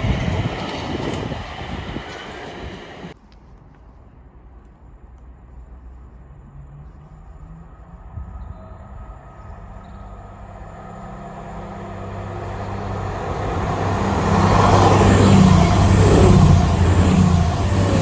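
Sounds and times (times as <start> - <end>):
train approaching: 0.0 - 3.2, 7.2 - 18.0.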